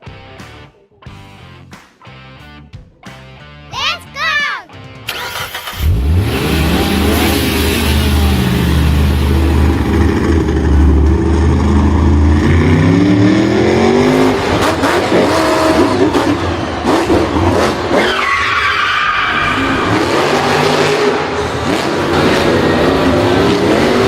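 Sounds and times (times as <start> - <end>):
engine revving: 5.1 - 18.2, 19.2 - 24.0.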